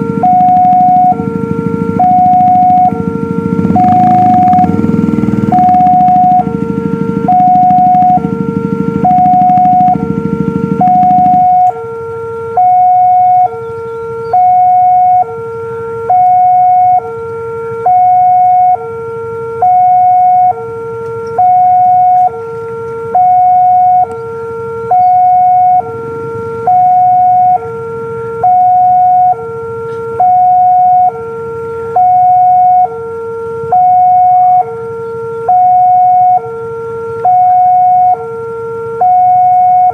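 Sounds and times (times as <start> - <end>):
low rumble: 0.0 - 11.9
two-tone crossing alarm: 0.0 - 39.9.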